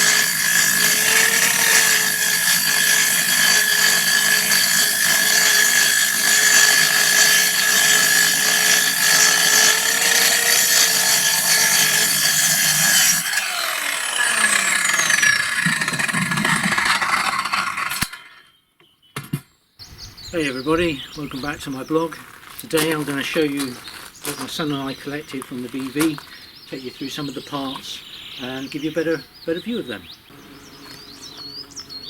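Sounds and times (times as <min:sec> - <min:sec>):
motor-driven machine spinning: 0:00.0 - 0:18.1, 0:30.3 - 0:32.0.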